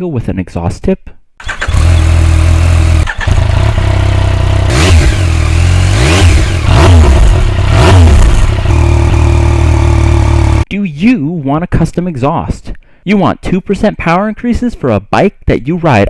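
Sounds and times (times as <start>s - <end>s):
motorcycle engine revving: 1.4s - 10.7s.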